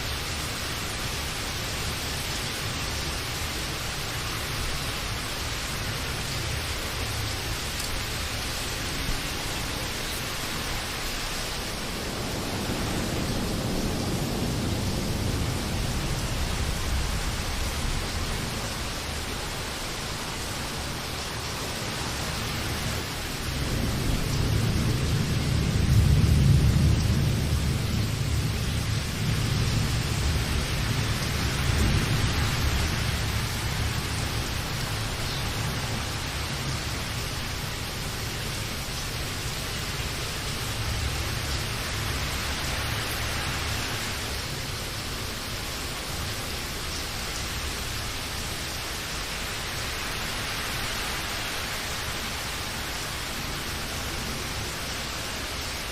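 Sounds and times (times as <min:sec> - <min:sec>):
heavy rain: 0:00.0 - 0:55.9
thunder rolling: 0:11.1 - 0:19.2, 0:23.5 - 0:37.1.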